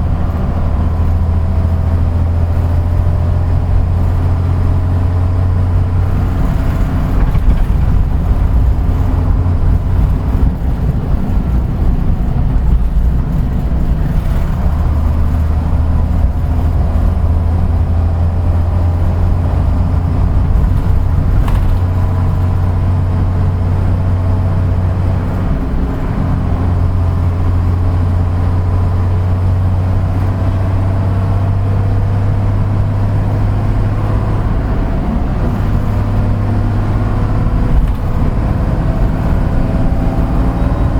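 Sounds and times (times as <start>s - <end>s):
bus engine drone: 0.0s - 40.9s
road noise: 0.0s - 40.9s.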